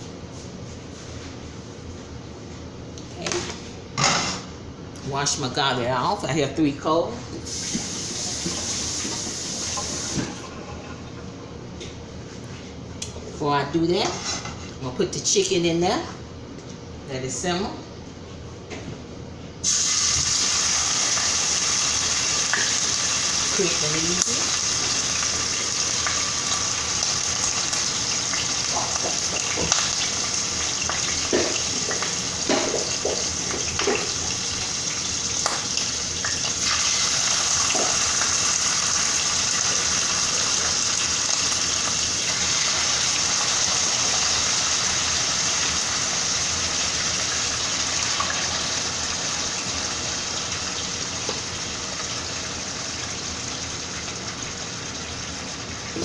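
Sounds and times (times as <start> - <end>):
chicken sizzling in a pan: 7.5 - 10.2, 19.6 - 56.0.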